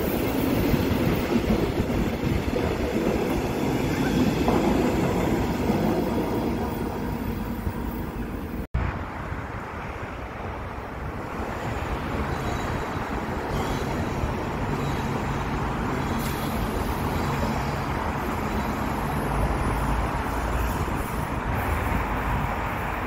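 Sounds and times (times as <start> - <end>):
deeper train rumble: 0.0 - 23.0
train rumbling past: 0.0 - 23.0.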